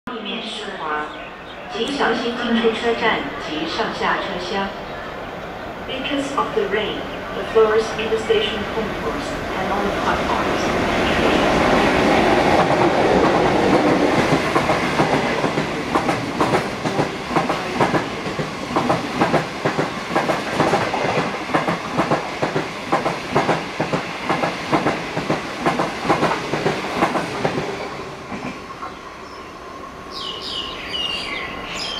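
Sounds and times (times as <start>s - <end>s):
train wheels clicking over rail joints: 12.6s - 28.5s.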